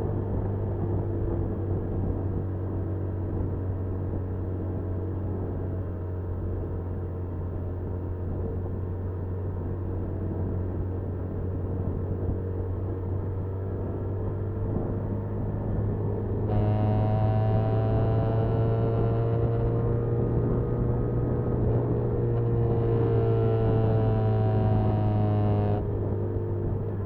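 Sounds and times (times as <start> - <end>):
small motorcycle engine running: 14.5 - 27.0.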